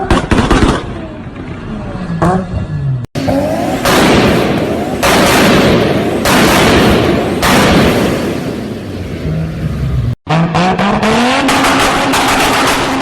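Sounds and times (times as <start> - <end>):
car exhaust popping and banging: 3.2 - 9.2, 10.3 - 13.0.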